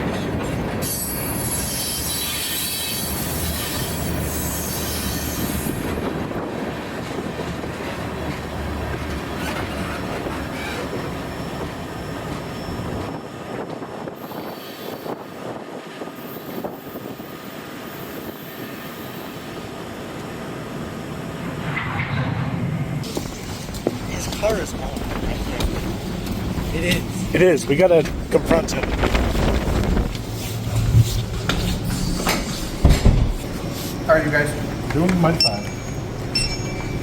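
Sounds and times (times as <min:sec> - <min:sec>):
freight train rolling past: 0:00.0 - 0:37.0
wheel squeal: 0:09.2 - 0:13.2.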